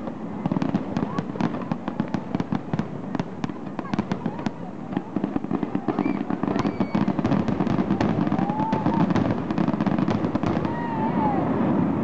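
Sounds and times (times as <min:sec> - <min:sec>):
fireworks popping and banging: 0:00.0 - 0:12.0.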